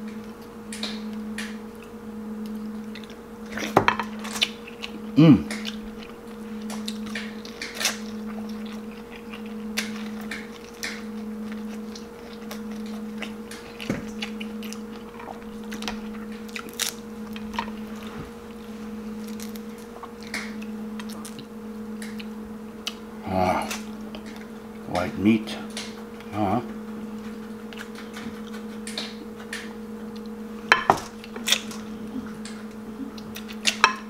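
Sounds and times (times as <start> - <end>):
steady low hum: 0.0 - 34.0
mouth chewing: 2.8 - 18.6, 19.2 - 30.4, 31.1 - 33.8
person humming: 5.0 - 5.8, 23.2 - 23.9, 24.9 - 26.8, 31.9 - 33.5
crab shell cracking: 6.6 - 17.8.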